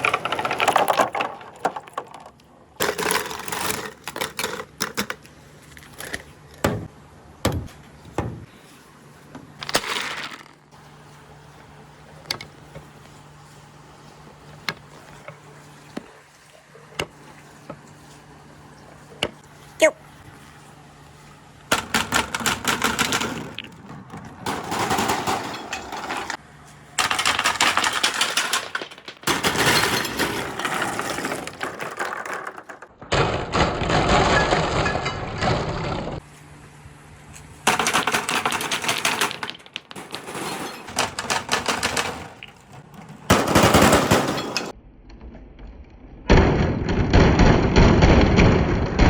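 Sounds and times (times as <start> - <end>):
marbles rolling down a track: 0.0 - 3.9, 27.0 - 36.2.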